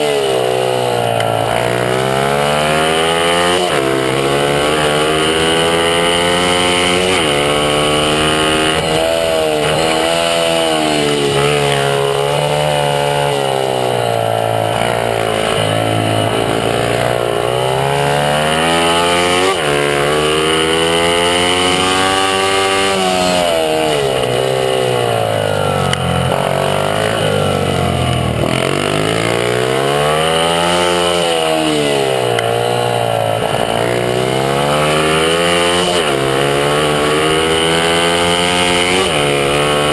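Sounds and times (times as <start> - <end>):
small motorbike engine revving: 0.0 - 39.9.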